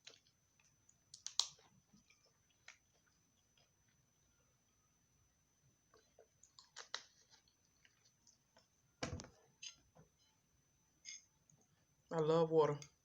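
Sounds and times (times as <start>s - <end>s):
wet chewing: 0.0s - 4.0s, 6.1s - 8.5s.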